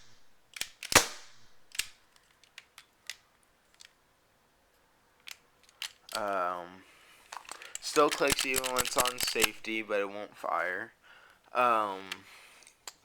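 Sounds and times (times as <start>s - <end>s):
airsoft pistol shot: 0.0s - 1.8s
pistol mechanism clicks: 0.0s - 4.0s, 5.2s - 6.3s, 7.4s - 9.7s, 12.1s - 13.0s.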